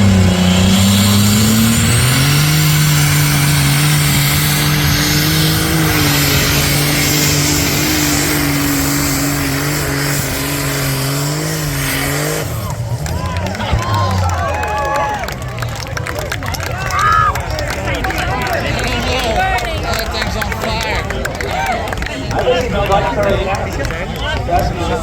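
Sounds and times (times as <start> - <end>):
high-revving engine under load: 0.0 - 15.3.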